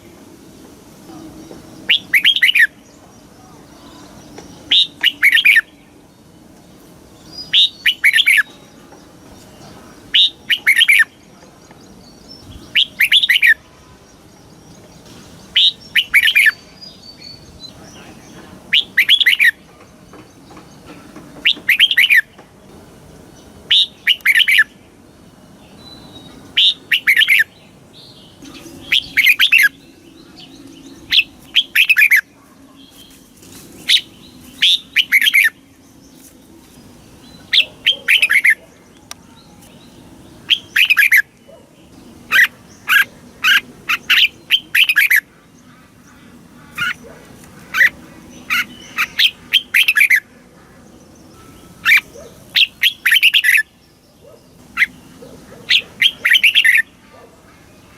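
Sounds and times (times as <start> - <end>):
bird singing warbled phrases: 0.0 - 57.9.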